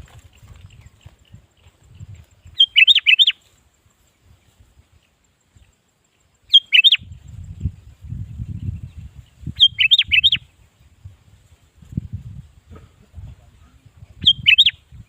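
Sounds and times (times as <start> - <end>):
bulbul singing: 0.1 - 4.4, 5.0 - 11.1, 13.9 - 15.0.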